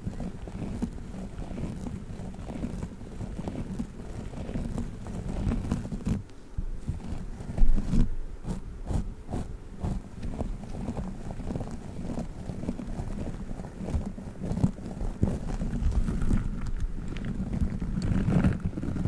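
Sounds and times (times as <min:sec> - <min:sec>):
squishy toy crackling: 0:07.0 - 0:19.0.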